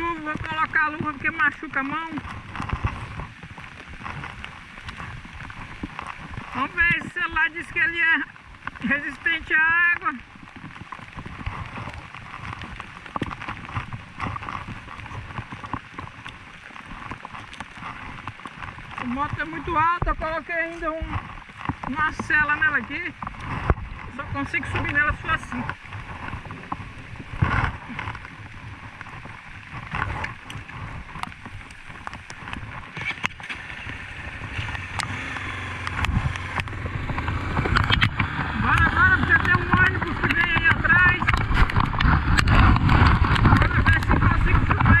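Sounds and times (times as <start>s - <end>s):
heavy rain: 0.0s - 45.0s
motorcycle engine at low revs: 21.0s - 45.0s
sharp clicks and knocks: 24.6s - 45.0s.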